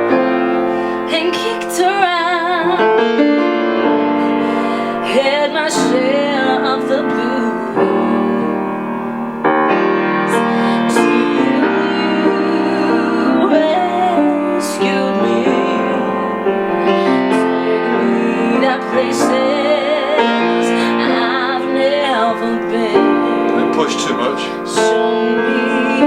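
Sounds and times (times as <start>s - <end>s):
piano accompaniment: 0.0s - 26.0s
woman singing with vibrato: 0.8s - 9.1s, 10.3s - 23.6s, 24.5s - 26.0s.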